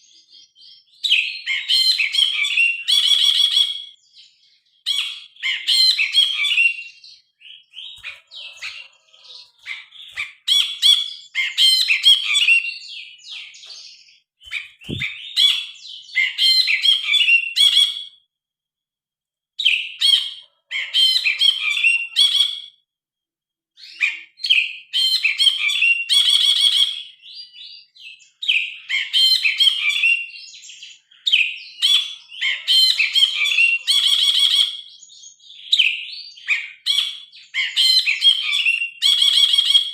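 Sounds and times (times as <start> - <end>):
bird singing chattering whistles: 14.5 - 15.6.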